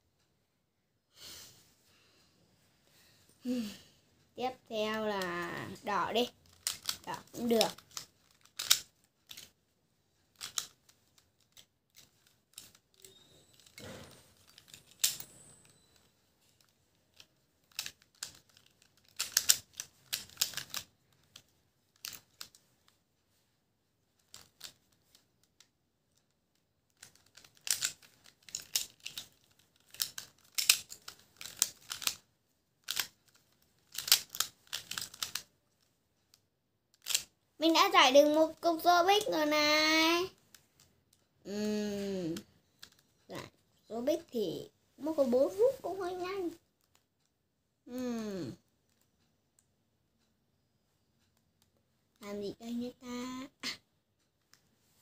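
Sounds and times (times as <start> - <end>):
plastic puzzle clicking as turned: 5.0 - 9.6, 10.2 - 23.0, 24.2 - 37.3, 42.3 - 43.2, 46.1 - 47.3, 48.8 - 49.2.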